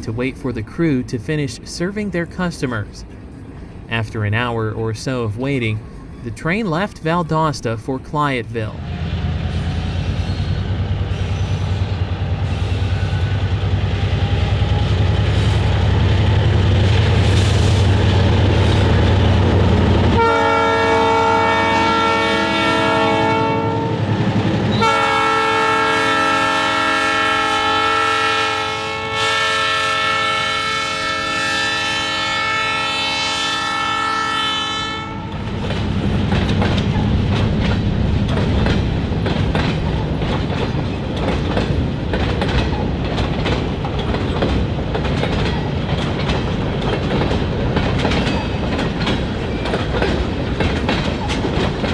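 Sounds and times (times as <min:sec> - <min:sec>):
diesel locomotive rumbling: 0:00.0 - 0:51.9
train wheels clicking over rail joints: 0:09.2 - 0:20.2, 0:35.3 - 0:51.9
locomotive air horn blasts: 0:20.1 - 0:24.1, 0:24.7 - 0:35.4.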